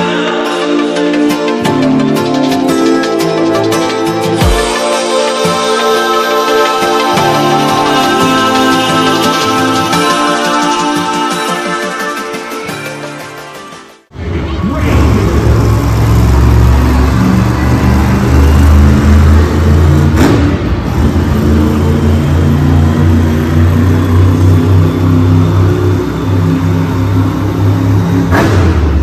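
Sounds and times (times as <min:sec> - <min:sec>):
monster truck engine revving: 0:14.1 - 0:29.0.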